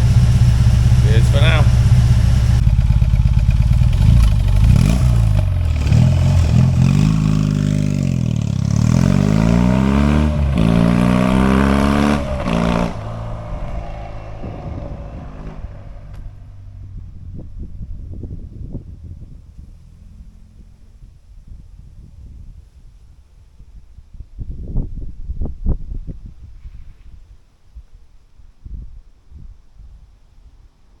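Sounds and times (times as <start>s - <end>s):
motorcycle engine revving: 0.0s - 22.5s.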